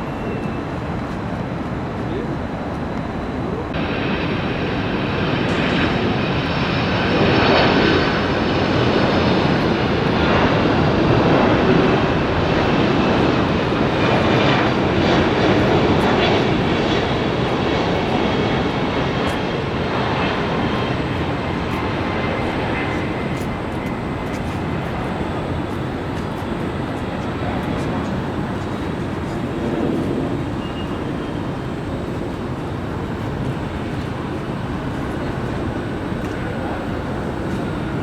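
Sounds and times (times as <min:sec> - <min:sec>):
high fan whine: 0:00.0 - 0:38.0
jet engines rushing: 0:00.0 - 0:38.0.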